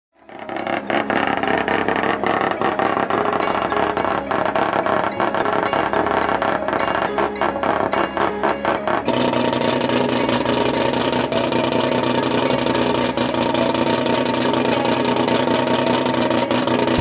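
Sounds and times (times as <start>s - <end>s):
car engine running choppy: 0.1s - 17.0s.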